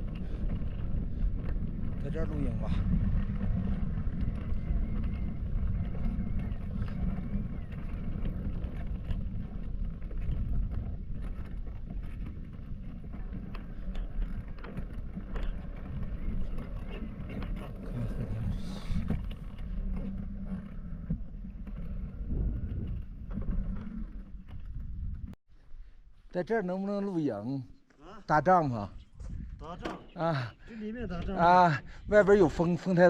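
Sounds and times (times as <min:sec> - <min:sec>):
gusty wind buffeting microphone: 0:00.0 - 0:25.4, 0:28.8 - 0:33.0.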